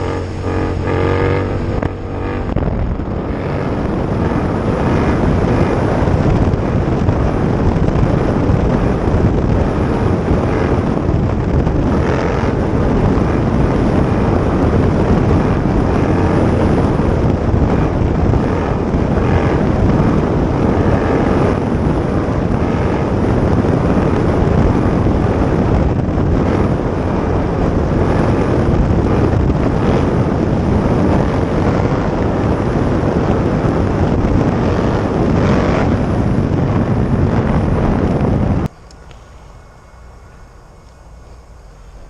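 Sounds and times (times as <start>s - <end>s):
motorcycle running: 0.0s - 42.0s.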